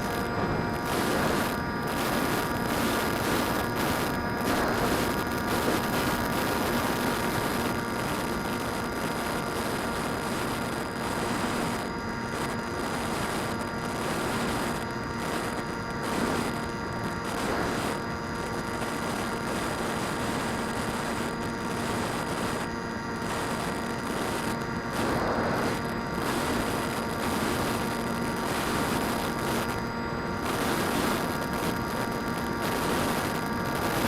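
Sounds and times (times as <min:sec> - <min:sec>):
drone propellers whining: 0:00.0 - 0:06.4, 0:21.2 - 0:31.4.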